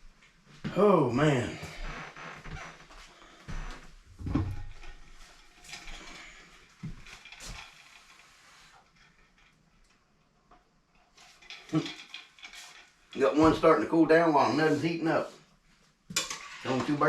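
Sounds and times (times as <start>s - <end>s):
faint room tone: 0.0s - 17.0s
knocks and light clatter of handling: 15.8s - 17.0s.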